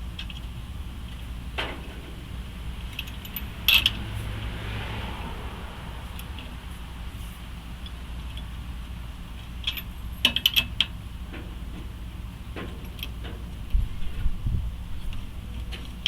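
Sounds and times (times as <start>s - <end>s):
metallic clinks and rattles: 2.9s - 4.0s.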